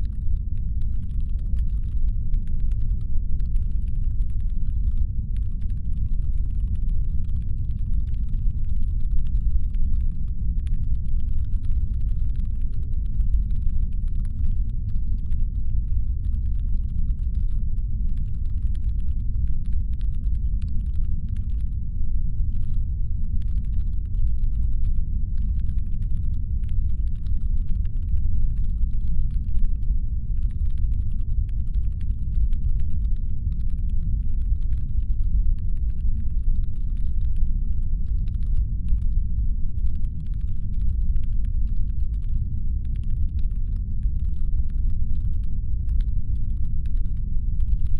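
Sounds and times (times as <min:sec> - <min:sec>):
rapid clicking: 0:00.0 - 0:21.7.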